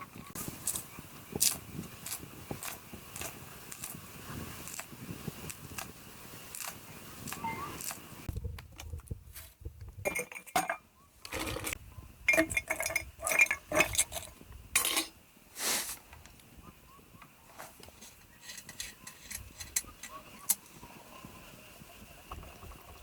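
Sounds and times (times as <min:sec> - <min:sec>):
dishes and utensils clinking: 0:10.1 - 0:15.1.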